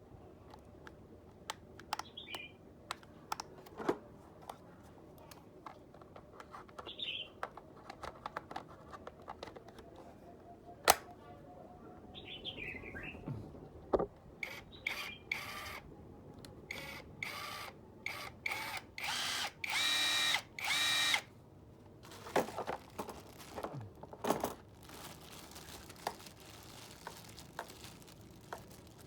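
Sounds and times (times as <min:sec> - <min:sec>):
small bird chirping: 0:02.0 - 0:02.6, 0:06.8 - 0:07.4, 0:12.1 - 0:13.3, 0:14.4 - 0:15.6.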